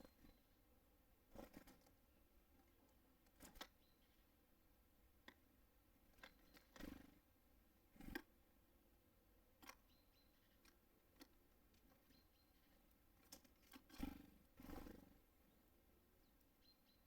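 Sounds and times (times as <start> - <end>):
faint high chirps: 0.0 - 0.6, 9.9 - 10.7, 12.0 - 12.8, 16.2 - 17.0
wing flutters: 1.3 - 1.9, 6.2 - 7.2, 13.3 - 15.2
beaks tapping on feeder: 6.1 - 7.0.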